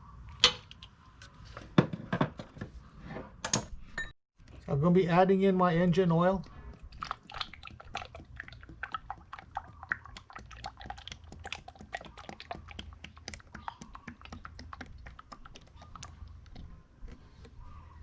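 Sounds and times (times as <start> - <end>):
oil glugging into a funnel: 6.4 - 17.8.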